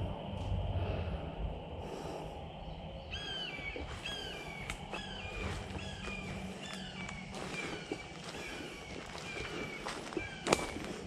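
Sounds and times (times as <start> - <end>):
bird calling: 1.8 - 11.0
footsteps on leaf litter: 3.9 - 11.0.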